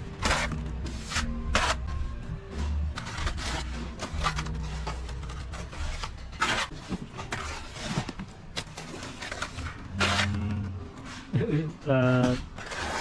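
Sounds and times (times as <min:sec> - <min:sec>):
trowel scraping wet plaster: 0:00.2 - 0:01.9, 0:03.0 - 0:10.7, 0:12.3 - 0:13.0.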